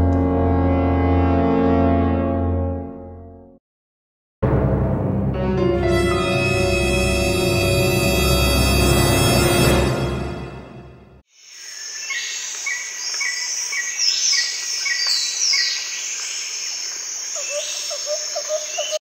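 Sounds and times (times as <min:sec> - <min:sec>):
scary music: 0:00.0 - 0:03.5, 0:04.4 - 0:11.2
insects chorus: 0:11.3 - 0:19.0
bird chirps: 0:17.3 - 0:19.0.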